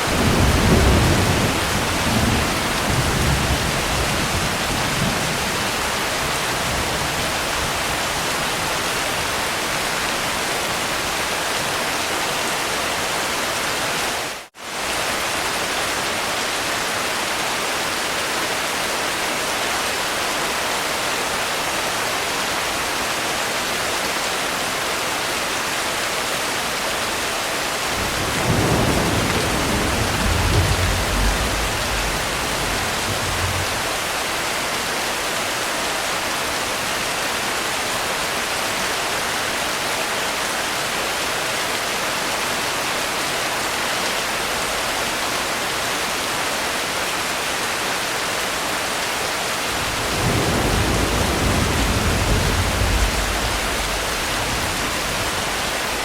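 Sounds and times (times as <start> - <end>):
rain hiss: 0.0 - 56.0
thunder rolling: 27.9 - 34.4, 49.7 - 56.0.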